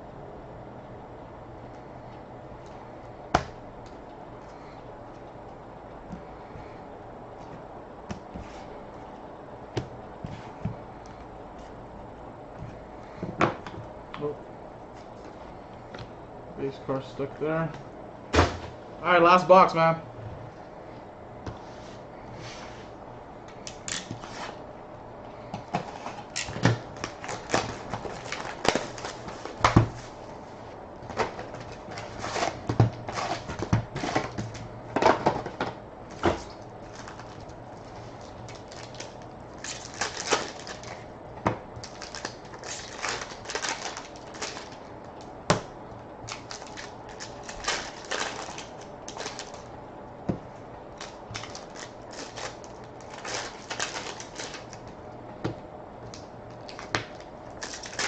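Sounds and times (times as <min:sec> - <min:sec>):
low steady hum: 0:00.0 - 0:58.0
wrappers crinkling and tearing: 0:26.3 - 0:30.2, 0:36.8 - 0:41.1, 0:41.8 - 0:45.3, 0:46.3 - 0:49.7, 0:50.9 - 0:54.8, 0:56.6 - 0:58.0.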